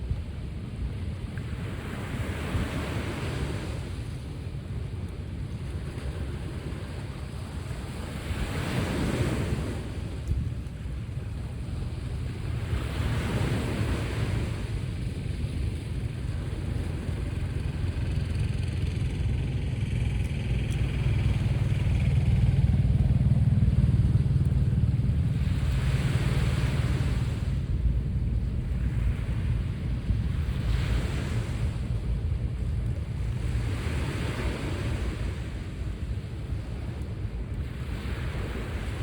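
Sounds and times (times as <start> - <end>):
sea waves washing ashore: 0.0 - 39.0
low engine drone: 14.4 - 37.6.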